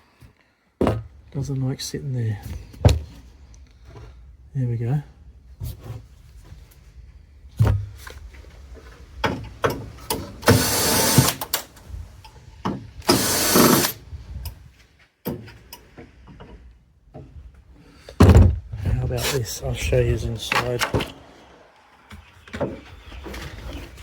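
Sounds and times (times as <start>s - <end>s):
parts knocking and clicking: 9.0s - 14.6s
loud rasping bursts: 10.4s - 11.7s, 13.0s - 14.0s.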